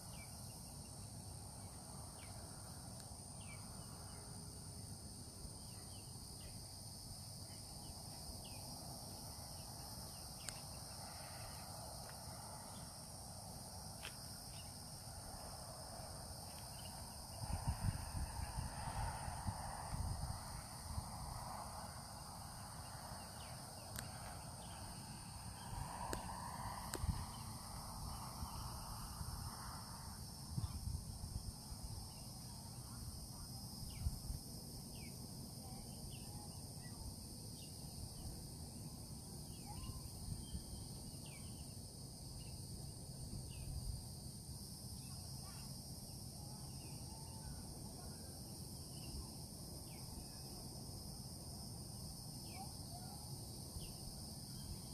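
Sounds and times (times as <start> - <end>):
insect chorus: 0.0 - 54.9
wind rumble on microphone: 17.1 - 23.4, 24.0 - 34.4.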